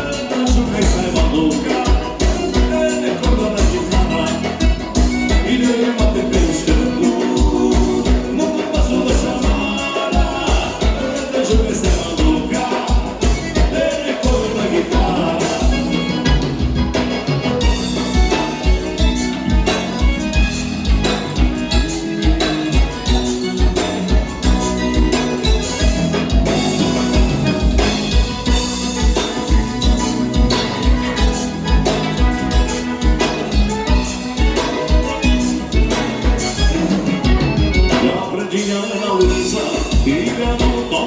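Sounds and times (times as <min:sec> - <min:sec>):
steady bass drum beat: 0:00.0 - 0:38.4, 0:39.2 - 0:41.0
live dance-band music: 0:00.0 - 0:41.0.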